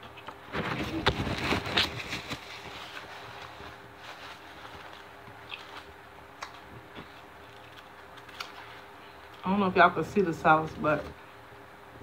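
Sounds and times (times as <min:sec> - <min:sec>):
faint steady hum: 0:00.0 - 0:12.0
chewing sandwich: 0:04.4 - 0:09.4.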